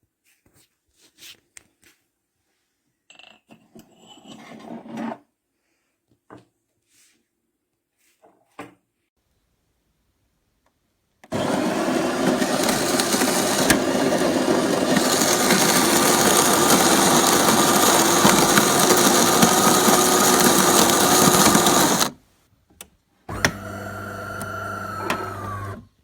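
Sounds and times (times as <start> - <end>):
espresso machine whirring: 11.3 - 22.2, 23.3 - 25.8.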